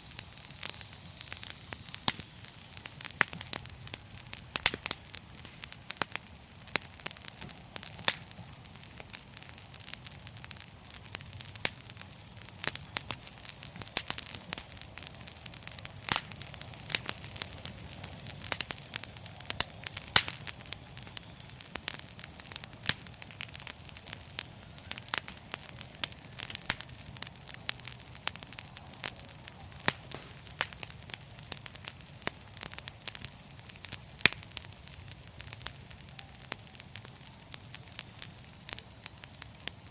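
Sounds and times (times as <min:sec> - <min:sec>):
flames hissing and rumbling: 0:00.0 - 0:39.9
wood fire crackling: 0:00.0 - 0:39.9.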